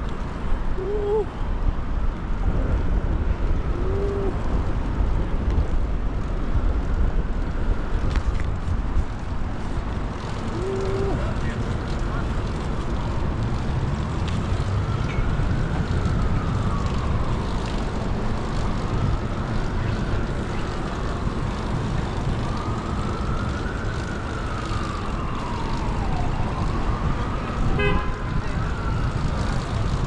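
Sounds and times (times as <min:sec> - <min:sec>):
traffic rumble: 0:00.0 - 0:30.0
wind: 0:00.0 - 0:30.0
emergency siren wailing: 0:09.8 - 0:30.0.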